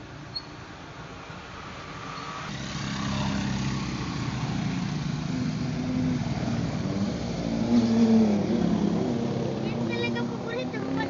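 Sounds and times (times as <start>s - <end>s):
vehicle engine droning: 2.5s - 11.0s.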